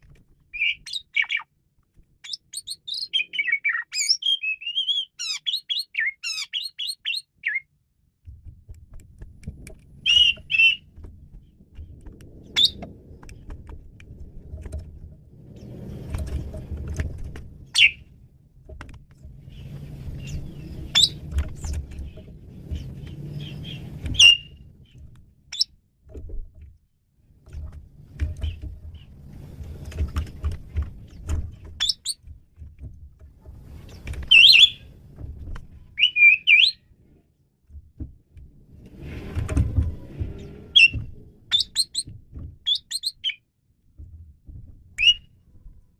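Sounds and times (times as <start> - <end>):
starling singing: 0.5 - 1.5, 2.2 - 7.7, 10.0 - 10.9, 17.7 - 18.0, 19.6 - 24.6, 34.3 - 34.9, 35.9 - 36.8, 40.4 - 42.1, 42.7 - 43.4
low rumble: 8.4 - 25.4.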